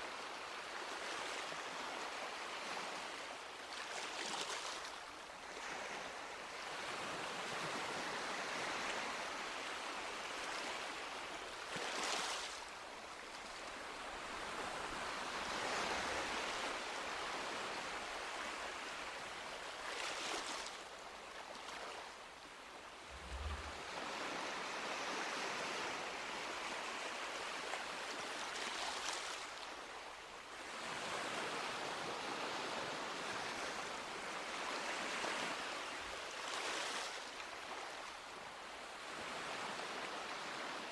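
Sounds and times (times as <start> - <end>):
sea waves washing onto beach: 23.1 - 24.6.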